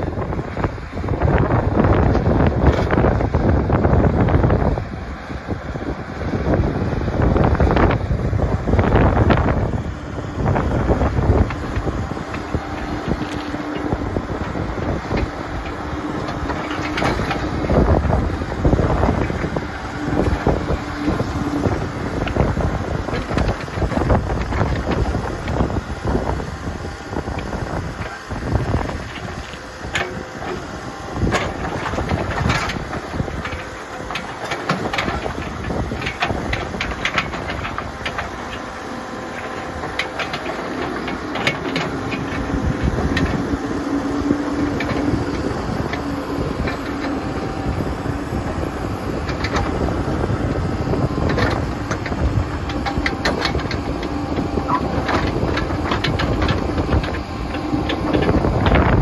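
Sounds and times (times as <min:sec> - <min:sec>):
diesel engine running under load: 0:00.0 - 0:59.0
backhoe bucket clanking: 0:07.4 - 0:59.0.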